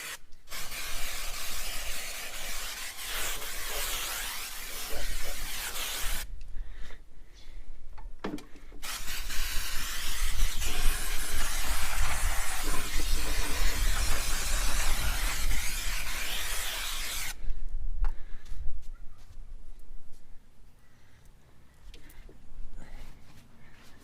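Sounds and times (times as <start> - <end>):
aerosol spraying: 0.0 - 6.2, 8.8 - 17.4.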